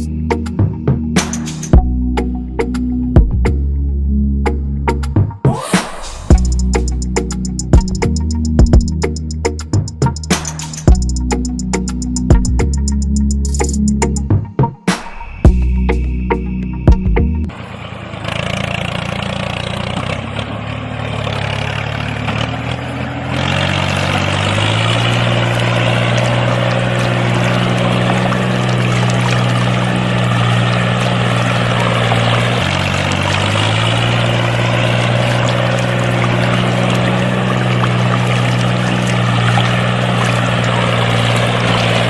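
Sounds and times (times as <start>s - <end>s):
small water pumps humming: 23.6s - 42.0s
water pouring and splashing: 23.6s - 42.0s.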